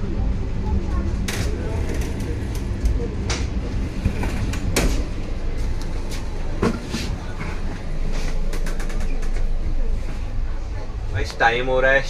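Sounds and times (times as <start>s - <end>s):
train coach low rumble: 0.0s - 12.0s.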